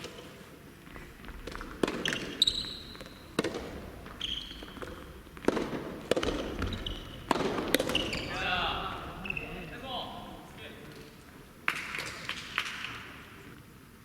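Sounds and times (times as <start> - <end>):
tennis ball hits and bounces: 1.3 - 2.4, 3.0 - 8.2
shoe squeaks: 2.0 - 3.3, 4.1 - 4.9, 6.5 - 9.7.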